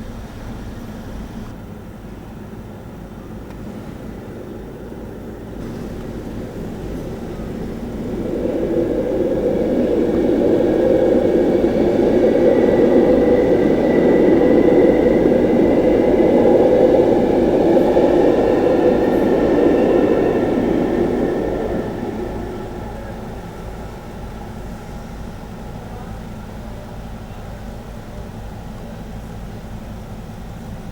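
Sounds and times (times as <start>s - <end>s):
train wheels rumbling on rails: 0.0s - 30.9s
faint high whine: 3.1s - 27.6s.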